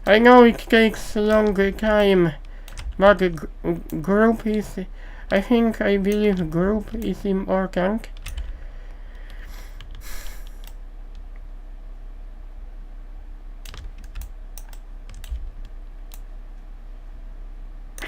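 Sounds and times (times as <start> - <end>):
low electrical hum: 0.0 - 18.0
computer keyboard keystrokes: 1.2 - 3.0, 8.2 - 8.5, 13.6 - 16.2.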